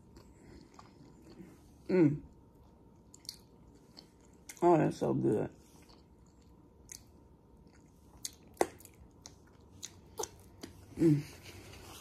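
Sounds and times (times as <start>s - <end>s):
person eating with wet clicks: 2.5s - 4.6s, 5.8s - 10.8s.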